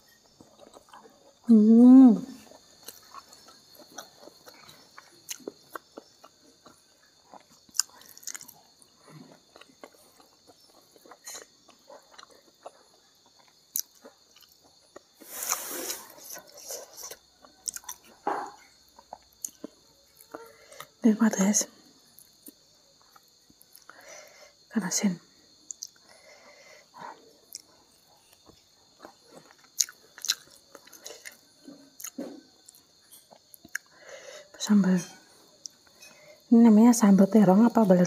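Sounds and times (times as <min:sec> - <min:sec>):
crickets chirping: 0:00.0 - 0:38.0
wet chewing and lip smacks: 0:00.2 - 0:01.5, 0:02.4 - 0:20.9, 0:25.7 - 0:26.1, 0:27.4 - 0:34.0.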